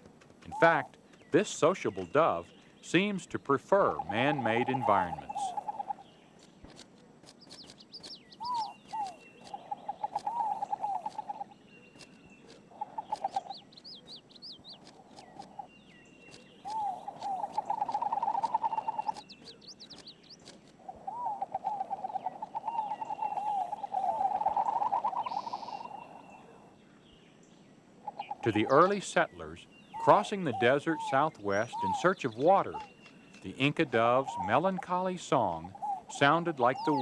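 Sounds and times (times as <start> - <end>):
birds calling with wavering low notes: 0.4 - 6.6, 7.4 - 37.0
bird chirps and whistles: 7.6 - 11.5, 16.6 - 20.2, 21.0 - 26.3, 29.8 - 33.1, 35.7 - 37.0.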